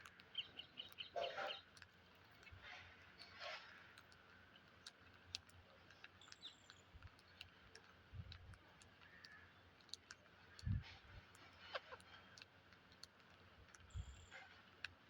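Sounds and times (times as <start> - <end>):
faint scattered clicks and taps: 0.0 - 15.0.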